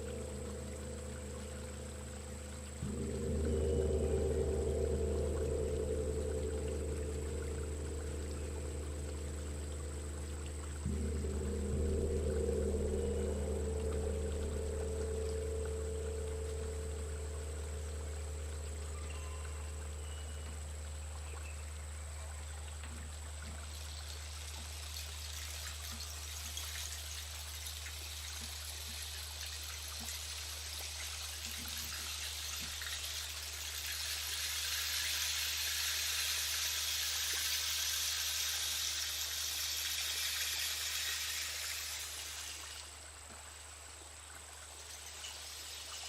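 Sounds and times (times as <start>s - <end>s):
steady low hum: 0.0s - 30.1s
soft rushing hiss: 0.0s - 46.0s.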